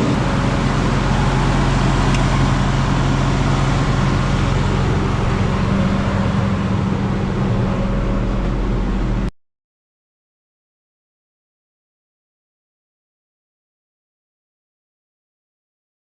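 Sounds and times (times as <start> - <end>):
diesel engine droning: 0.0 - 9.3.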